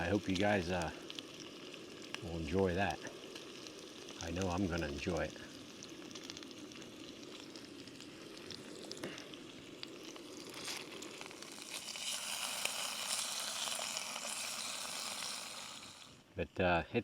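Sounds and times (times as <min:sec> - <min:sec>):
food sizzling in frying pan: 0:00.0 - 0:16.3.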